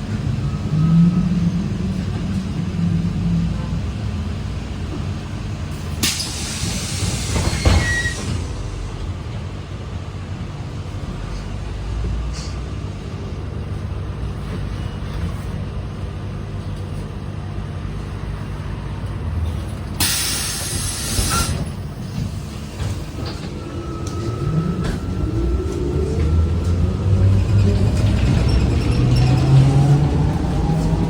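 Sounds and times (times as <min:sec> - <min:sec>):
trolleybus humming: 0:00.0 - 0:31.0
compressed air hiss: 0:20.0 - 0:21.6.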